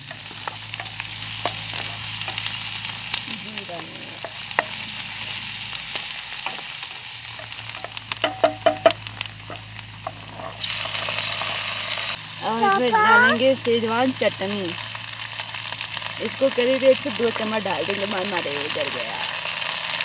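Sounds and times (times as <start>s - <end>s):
onion sizzling in oil: 0.0s - 20.0s
wooden spatula scraping pan: 7.3s - 11.5s.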